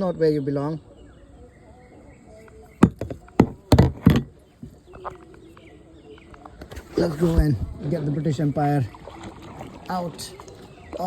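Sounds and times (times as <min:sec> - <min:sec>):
faint outdoor background: 0:00.0 - 0:11.0
sharp knocks: 0:02.8 - 0:04.3.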